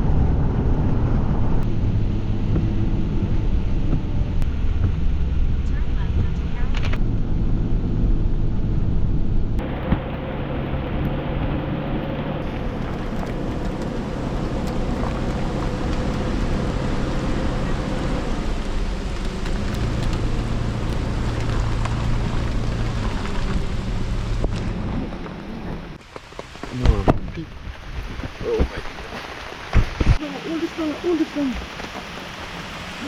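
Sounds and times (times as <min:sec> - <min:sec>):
low hum: 0:00.0 - 0:26.0
heavy rain pouring: 0:09.6 - 0:33.0.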